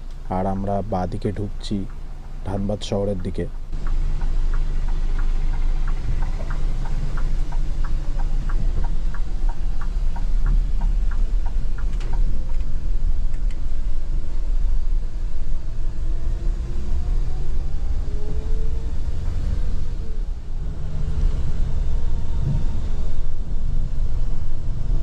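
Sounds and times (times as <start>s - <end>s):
turn indicator ticking: 0.0s - 14.6s
bus engine rumble: 0.0s - 25.0s
faint rising whine: 3.6s - 25.0s.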